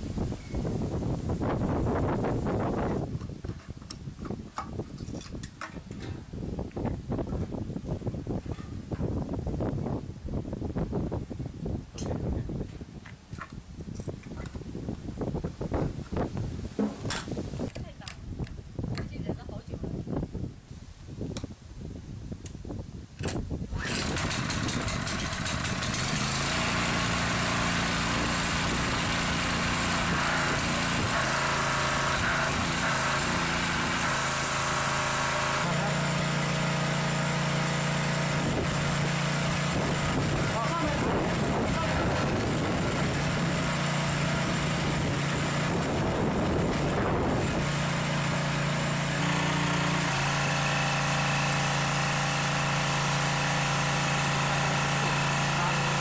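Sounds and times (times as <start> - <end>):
pressure washer engine running: 23.8 - 56.0.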